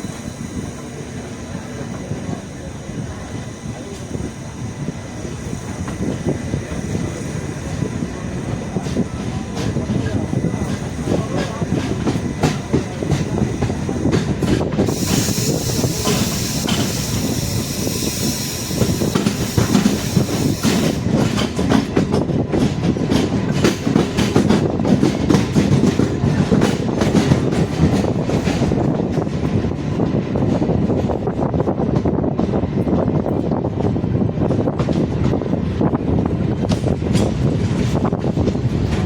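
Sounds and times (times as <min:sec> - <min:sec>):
train wheels clacking over rail joints: 0:00.0 - 0:39.0
hiss: 0:14.8 - 0:21.0.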